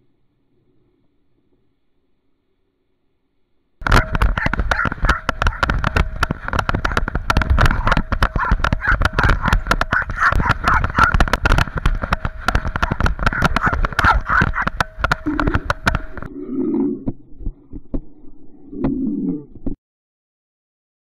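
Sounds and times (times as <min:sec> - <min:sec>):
camera harness rattling and knocking: 0:03.8 - 0:16.3.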